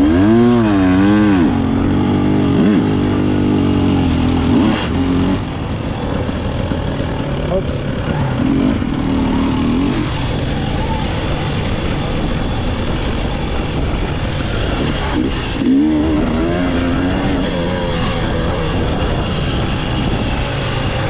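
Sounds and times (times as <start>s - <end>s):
motorcycle engines revving: 0.0s - 21.0s.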